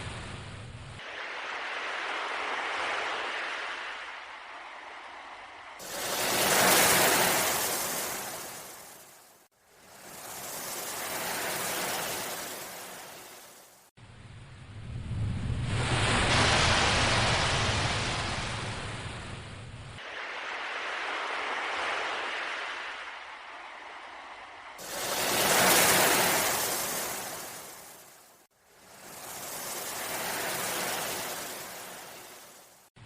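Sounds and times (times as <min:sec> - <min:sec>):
ocean waves breaking: 0:01.0 - 0:13.9, 0:15.6 - 0:19.4, 0:20.0 - 0:32.9
low rumble: 0:14.0 - 0:20.0.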